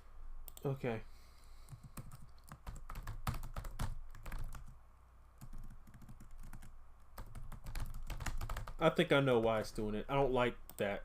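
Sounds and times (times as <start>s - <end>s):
typing on computer keyboard: 1.7s - 4.8s, 5.4s - 8.8s.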